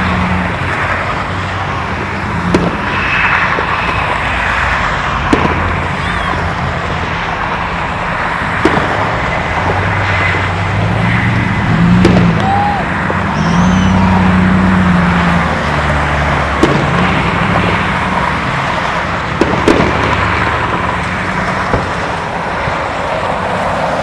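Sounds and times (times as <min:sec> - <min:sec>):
distant firework bangs: 0:00.0 - 0:24.0
road traffic: 0:00.0 - 0:24.0.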